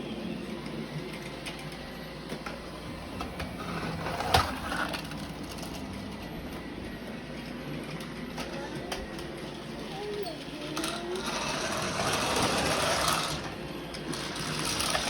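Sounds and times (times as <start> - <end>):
robot vacuum motor hum: 0.7 - 15.0.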